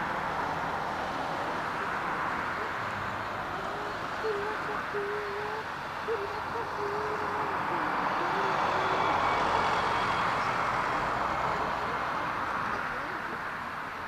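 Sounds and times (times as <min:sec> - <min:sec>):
bird hooting call: 0:03.4 - 0:13.4.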